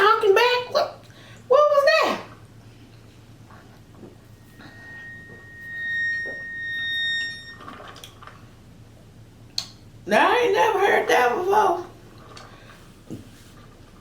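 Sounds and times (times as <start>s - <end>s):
high whistling from sucking straw: 4.2s - 8.2s.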